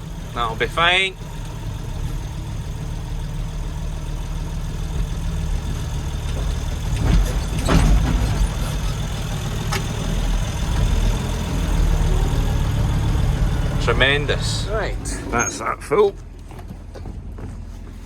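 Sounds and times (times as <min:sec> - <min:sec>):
tractor diesel engine running: 0:00.0 - 0:18.0
clatter of knocks: 0:04.9 - 0:09.1.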